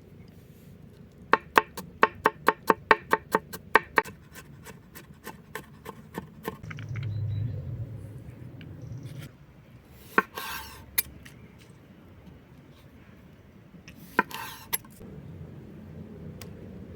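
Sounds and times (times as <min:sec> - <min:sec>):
low rubbing rumble: 0:06.6 - 0:09.9.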